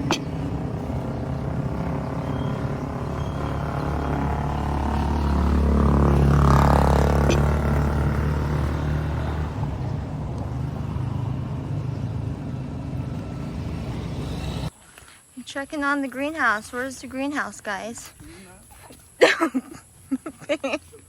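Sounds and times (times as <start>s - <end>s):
vehicle engine droning: 0.0s - 14.7s.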